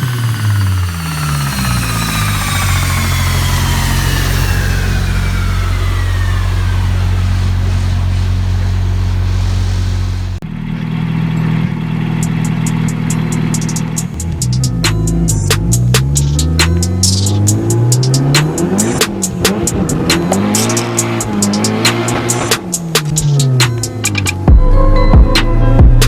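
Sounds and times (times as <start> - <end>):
low drone: 0.0 - 11.0
engine running: 0.0 - 26.0
high turbo whine: 0.0 - 26.0.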